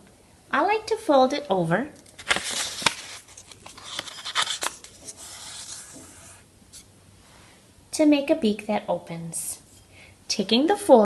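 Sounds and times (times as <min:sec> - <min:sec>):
paper rustling: 0:02.0 - 0:06.9
paper crackling: 0:02.1 - 0:06.4.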